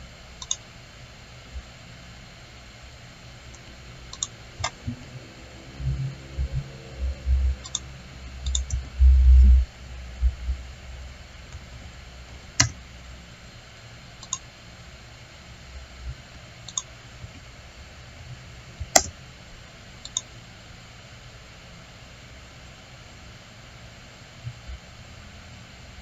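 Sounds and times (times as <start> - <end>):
faint low hum: 0.0 - 26.0
computer mouse clicking: 0.4 - 0.6, 3.5 - 4.8, 7.6 - 8.9, 12.6 - 12.8, 14.2 - 14.5, 16.7 - 16.9, 18.8 - 19.2, 20.0 - 20.3.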